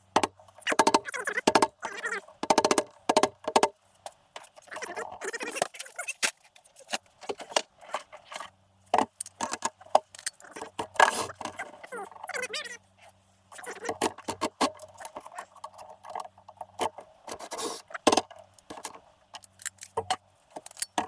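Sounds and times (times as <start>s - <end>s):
faint steady hum: 0.0s - 21.0s
metal tools clinking and scraping: 19.4s - 21.0s.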